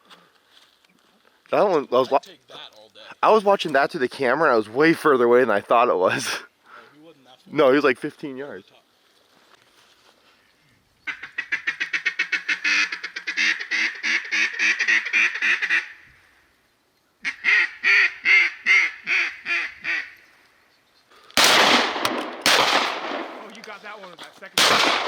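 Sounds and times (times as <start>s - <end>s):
duck quacking: 11.1s - 15.9s, 17.2s - 20.2s
shotgun shot: 21.4s - 23.8s, 24.6s - 25.0s.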